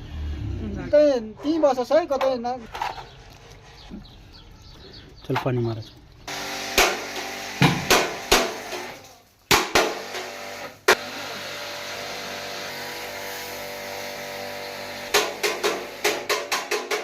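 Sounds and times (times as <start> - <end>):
hammer striking metal: 15.1 - 17.0.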